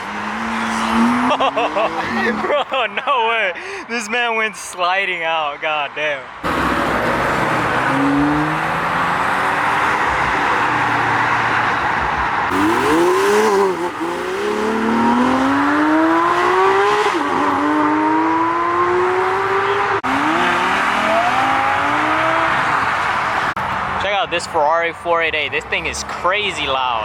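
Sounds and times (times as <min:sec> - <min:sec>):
car accelerating through gears: 0:00.0 - 0:02.4, 0:06.4 - 0:11.4, 0:12.5 - 0:23.5.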